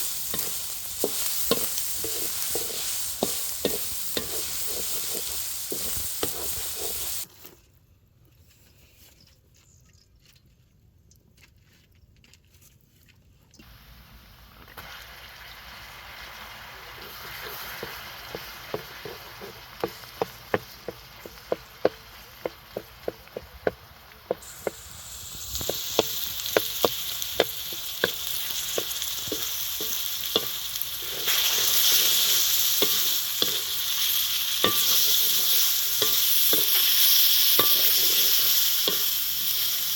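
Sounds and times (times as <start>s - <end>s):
food sizzling in a pan: 0.0s - 7.3s, 13.6s - 39.9s
utensil knocking against pan: 25.6s - 30.6s.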